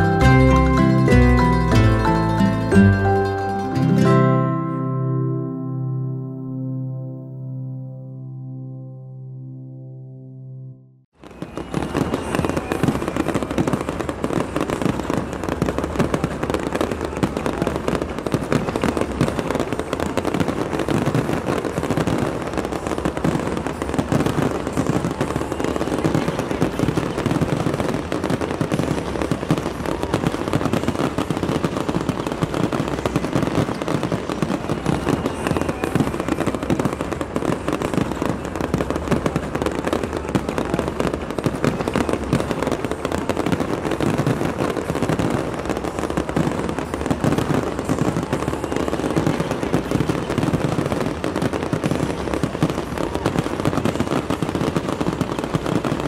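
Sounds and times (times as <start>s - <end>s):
fireworks bursting and crackling: 0.0s - 4.9s, 11.2s - 56.0s.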